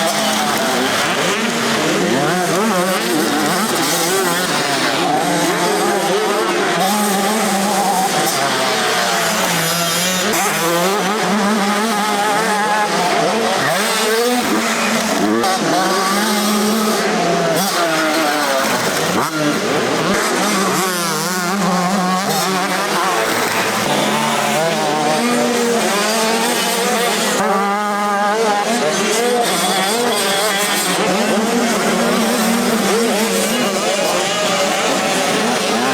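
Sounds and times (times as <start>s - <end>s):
motocross motorcycle engines revving: 0.0s - 35.9s.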